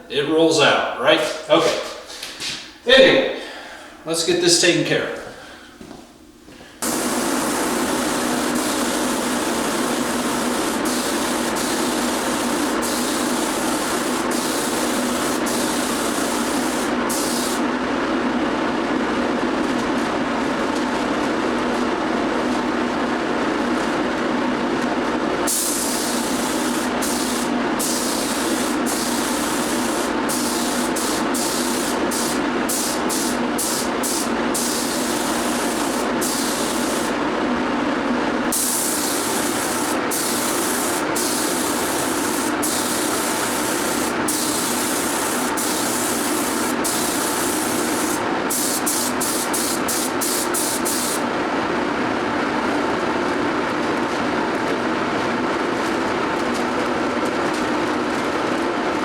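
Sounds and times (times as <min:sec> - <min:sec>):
paint spray gun hissing: 0:06.8 - 0:17.7, 0:25.4 - 0:37.2, 0:38.5 - 0:51.3.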